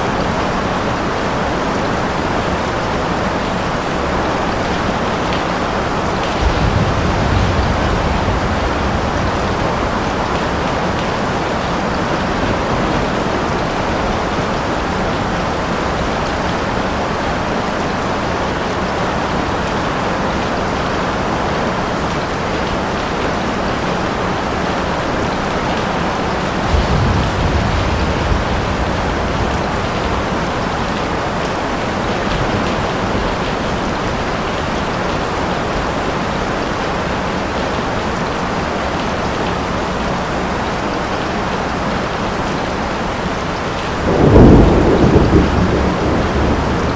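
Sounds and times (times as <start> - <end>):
steady rain falling: 0.0 - 46.9
low rumble of thunder: 4.4 - 16.4, 26.1 - 35.2, 43.7 - 46.9.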